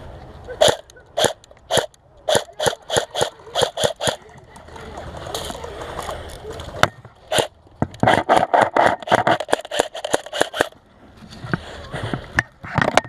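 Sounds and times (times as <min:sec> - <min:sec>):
airsoft gun firing single shots: 0:00.6 - 0:04.2.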